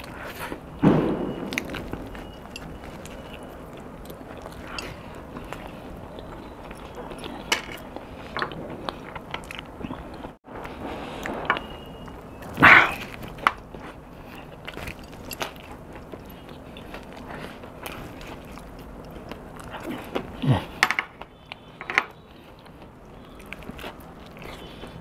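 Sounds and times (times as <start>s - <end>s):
man chewing with wet smacking: 0.0s - 25.0s
burst of noise: 0.7s - 3.2s.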